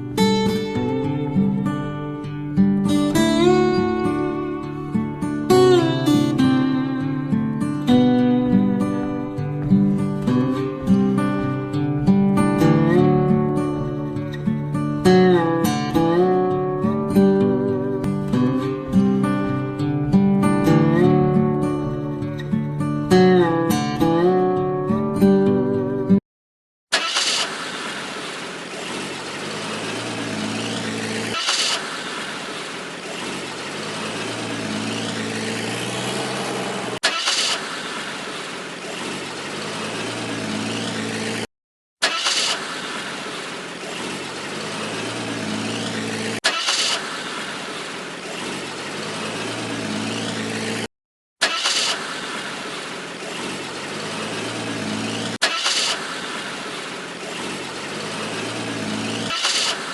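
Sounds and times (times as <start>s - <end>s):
vehicle engine running: 8.0s - 22.8s, 27.0s - 59.9s
short hiss: 46.4s - 47.5s, 55.4s - 56.5s, 59.3s - 59.9s.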